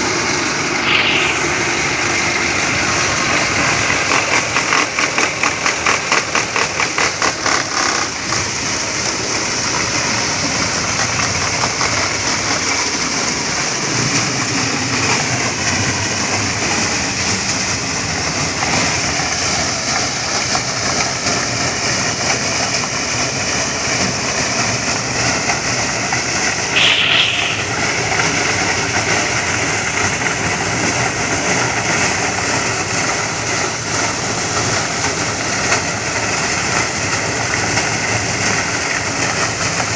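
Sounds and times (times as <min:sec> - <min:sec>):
thresher mechanical din: 0:00.7 - 0:08.6, 0:25.1 - 0:32.5.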